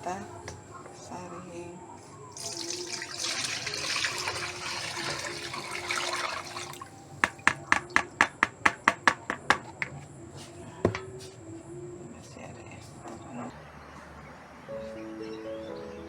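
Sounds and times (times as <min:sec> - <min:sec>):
liquid pouring through a strainer: 0:02.3 - 0:06.9
sharp taps: 0:07.2 - 0:10.0.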